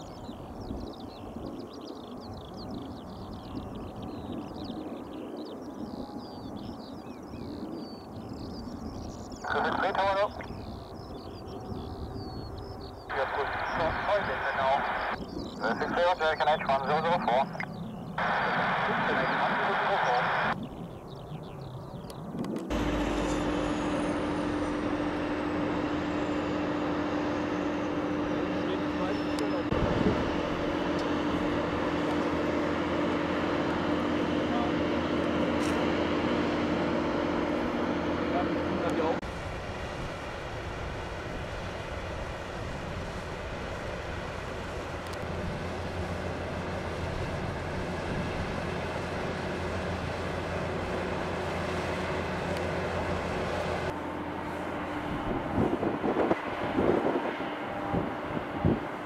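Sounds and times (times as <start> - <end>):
jet engines running: 0.0 - 59.0
faint high whine: 8.4 - 20.6, 22.7 - 39.2.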